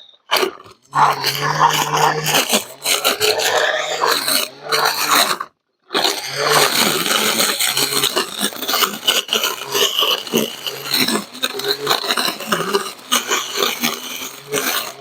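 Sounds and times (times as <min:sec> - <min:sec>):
brush cutter motor hum: 0:00.9 - 0:05.4, 0:06.0 - 0:15.0
cutting head rasping through grass: 0:06.0 - 0:15.0.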